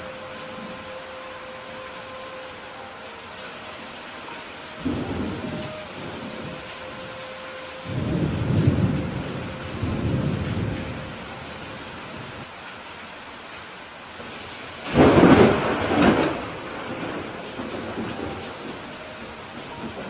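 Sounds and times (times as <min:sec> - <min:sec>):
rain falling: 0:00.0 - 0:20.0
thunder rumbling: 0:04.2 - 0:12.4, 0:14.8 - 0:20.0
loud thunderclap: 0:14.9 - 0:18.3.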